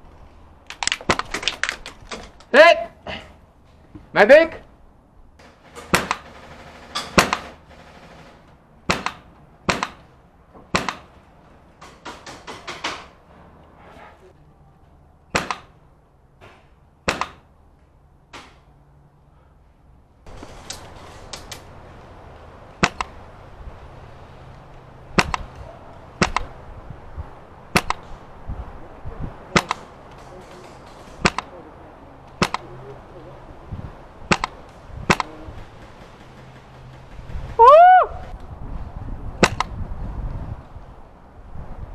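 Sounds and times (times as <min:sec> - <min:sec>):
airsoft guns firing: 0:05.4 - 0:10.1, 0:15.3 - 0:15.7, 0:17.1 - 0:17.4, 0:22.8 - 0:23.2, 0:34.3 - 0:38.3.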